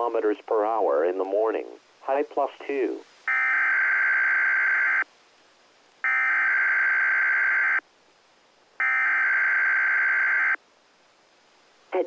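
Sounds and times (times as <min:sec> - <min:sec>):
harsh buzzing data bursts: 0:03.2 - 0:05.1, 0:06.0 - 0:07.9, 0:08.8 - 0:10.6.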